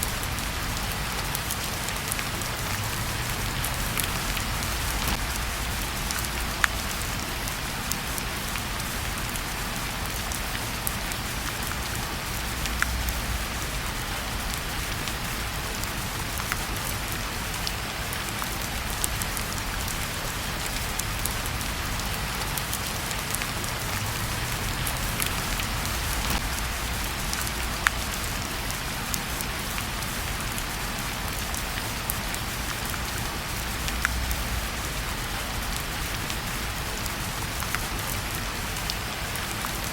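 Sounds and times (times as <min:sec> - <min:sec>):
wood fire popping and crackling: 0:00.0 - 0:09.4, 0:17.6 - 0:28.8
steady rain hissing: 0:00.0 - 0:39.9.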